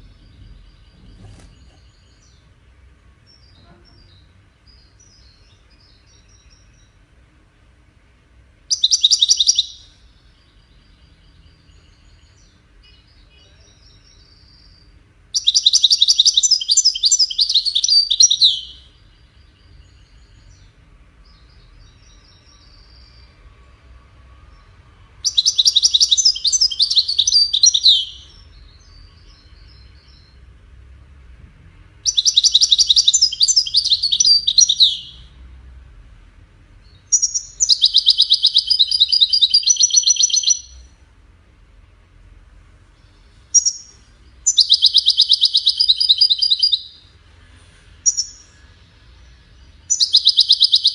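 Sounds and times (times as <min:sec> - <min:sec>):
goldfinch twittering and trilling: 0:08.7 - 0:09.8, 0:15.4 - 0:18.7, 0:25.2 - 0:29.6, 0:32.1 - 0:35.2, 0:37.1 - 0:40.8, 0:44.5 - 0:46.9, 0:49.9 - 0:50.9.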